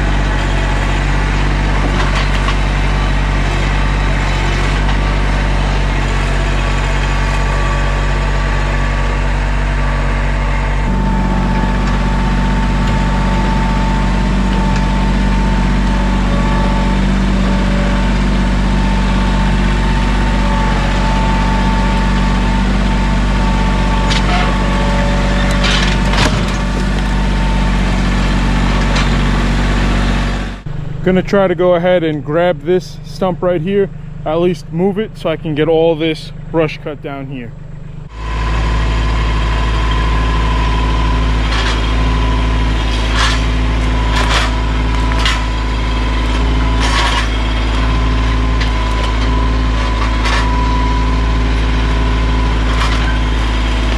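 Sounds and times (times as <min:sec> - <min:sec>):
steady whine: 0:00.0 - 0:53.9
tractor diesel engine running: 0:00.0 - 0:53.9.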